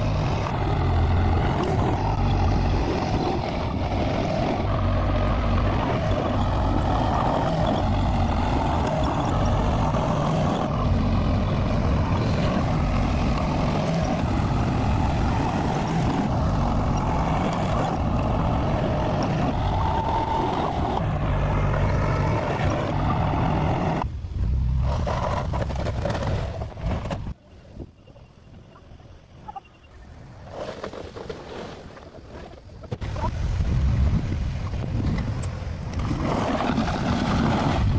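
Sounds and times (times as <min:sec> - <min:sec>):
bulldozer diesel engine running: 0:00.0 - 0:27.3.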